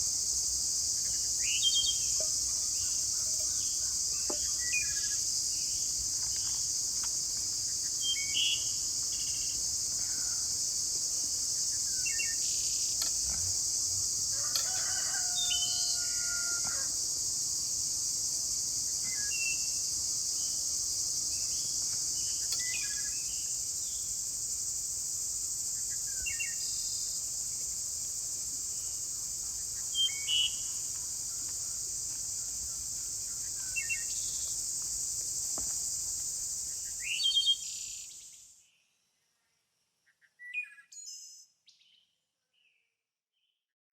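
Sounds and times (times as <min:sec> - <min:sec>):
high-pitched insect chorus: 0:00.0 - 0:38.8
rooster crowing: 0:14.3 - 0:17.0.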